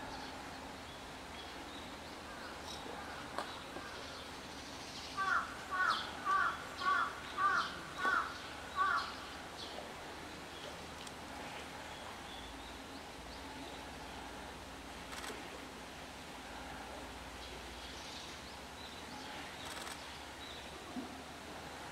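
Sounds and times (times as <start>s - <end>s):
bird calling: 5.2s - 9.2s.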